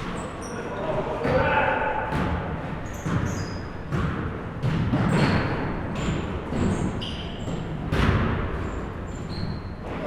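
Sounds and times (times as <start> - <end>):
sneaker squeaks on court: 0.0 - 0.8, 2.8 - 4.0, 5.1 - 7.7, 8.6 - 9.9
basketball bouncing on gym floor: 1.2 - 9.6.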